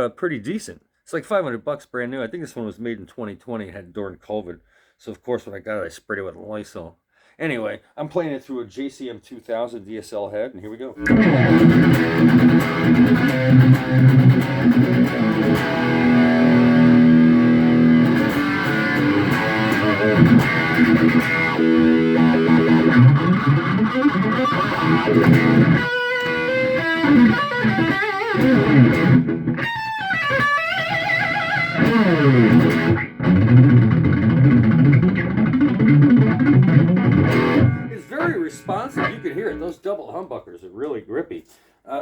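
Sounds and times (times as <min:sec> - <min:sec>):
distorted electric guitar: 0:11.0 - 0:39.7.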